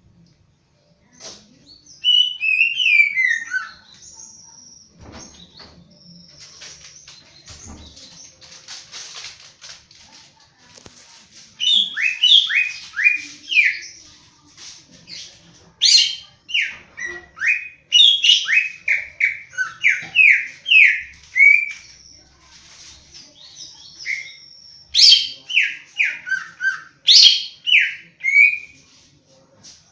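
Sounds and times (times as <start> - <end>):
bird singing whistled notes: 23.5 - 28.7.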